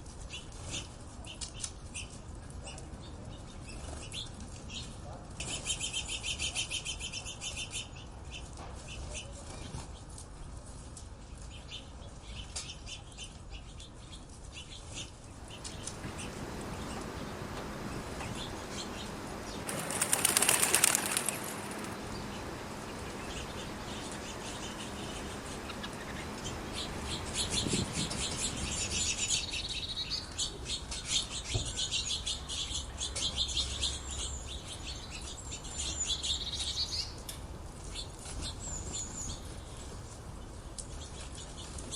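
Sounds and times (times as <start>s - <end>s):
small birds chirping: 11.4s - 37.2s
wing flapping: 15.4s - 29.5s.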